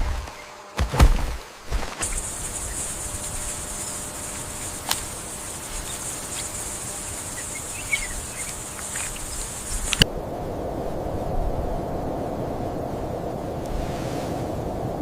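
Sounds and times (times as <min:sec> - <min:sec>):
insects trilling: 0:01.4 - 0:10.0
low rushing noise: 0:02.0 - 0:15.0
sharp clicks: 0:07.9 - 0:10.0.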